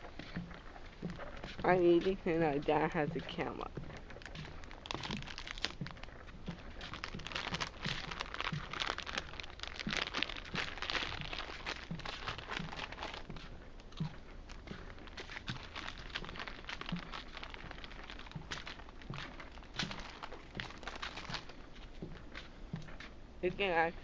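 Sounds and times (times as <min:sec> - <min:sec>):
soft thumps: 0:00.0 - 0:23.7
snack bag crinkling: 0:03.3 - 0:22.5
chips crunching: 0:04.1 - 0:21.9.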